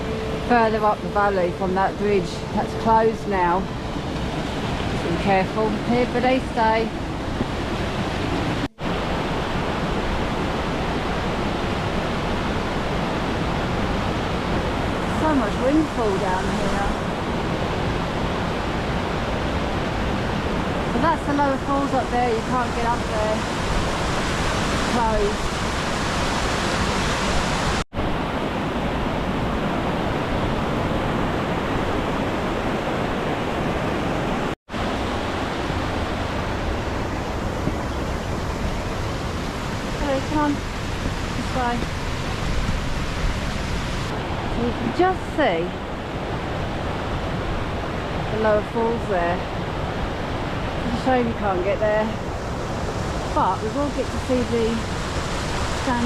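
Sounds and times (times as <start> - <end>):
stream rushing over rocks: 7.0 - 28.2, 49.5 - 56.0.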